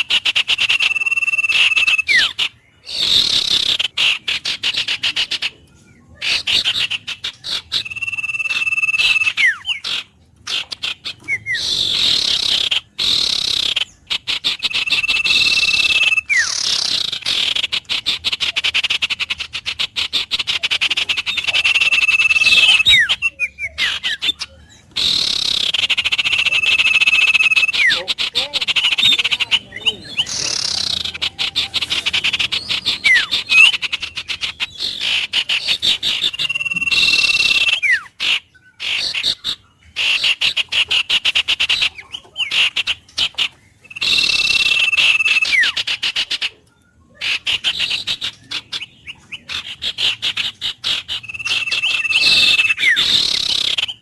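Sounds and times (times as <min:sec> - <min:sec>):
frogs trilling chorus: 0:06.2 - 0:46.5.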